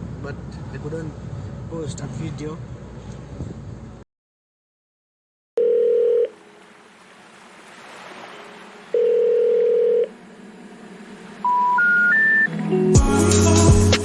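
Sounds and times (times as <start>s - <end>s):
telephone ringback tone: 5.6s - 6.4s, 9.0s - 10.1s, 11.4s - 12.5s
short rising tones: 10.0s - 13.4s.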